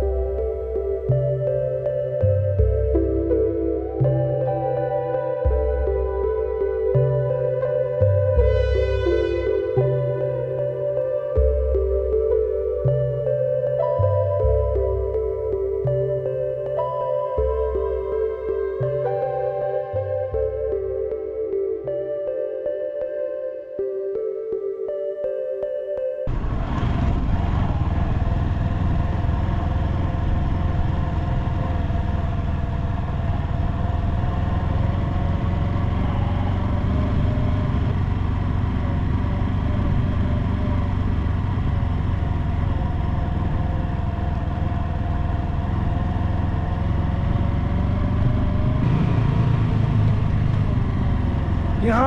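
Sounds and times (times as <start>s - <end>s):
road and wind noise: 26.3s - 52.0s
vehicle engine running: 26.3s - 52.0s.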